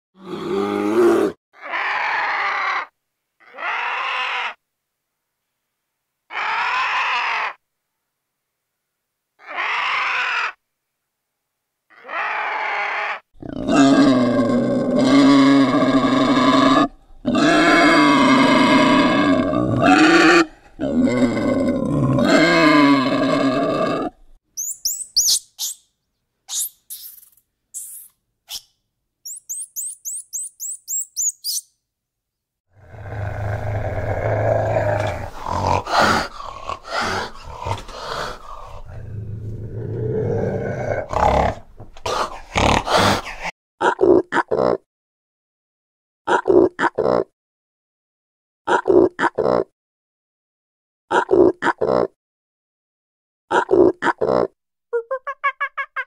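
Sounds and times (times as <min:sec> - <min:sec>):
deep animal roar: 0:00.2 - 0:04.6, 0:11.9 - 0:24.3, 0:32.7 - 0:43.3
raspy animal calls: 0:01.6 - 0:04.6, 0:06.3 - 0:07.6, 0:09.4 - 0:10.6, 0:11.9 - 0:13.2, 0:24.6 - 0:25.8, 0:26.5 - 0:28.7, 0:29.3 - 0:31.7
monkey chirps and squeaks: 0:24.6 - 0:25.9, 0:26.5 - 0:31.7.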